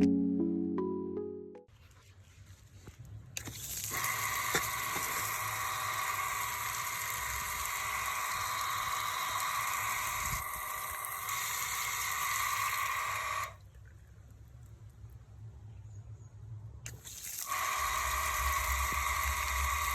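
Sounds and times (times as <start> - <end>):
electric water pump running: 3.4 - 13.6, 16.9 - 19.9
water hissing: 3.4 - 13.6, 16.9 - 19.9.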